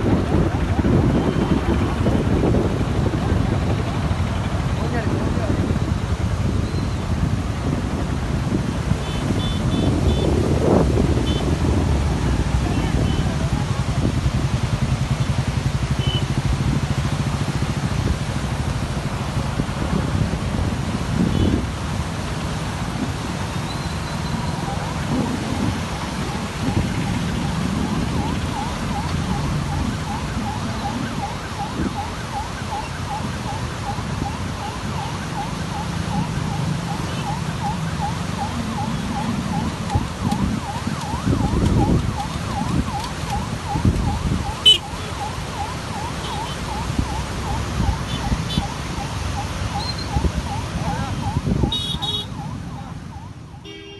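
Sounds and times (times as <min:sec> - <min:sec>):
rushing floodwater roar: 0:00.0 - 0:53.9
faint warbling siren: 0:09.4 - 0:16.2, 0:23.6 - 0:53.8.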